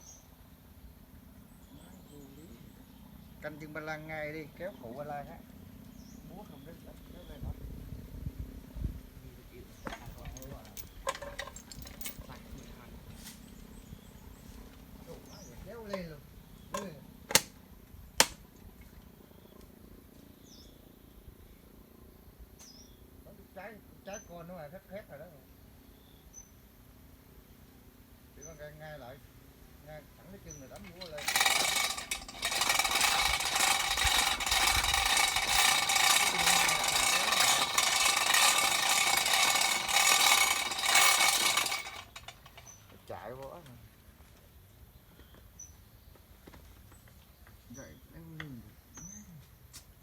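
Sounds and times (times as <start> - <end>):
hammer drill rattling: 9.8 - 12.8, 16.7 - 17.6, 30.7 - 43.0.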